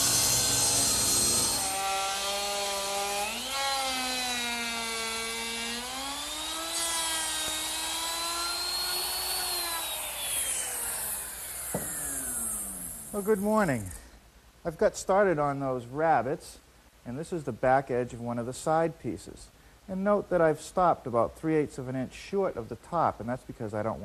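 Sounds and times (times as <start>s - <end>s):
table saw motor whine: 0.0s - 14.0s.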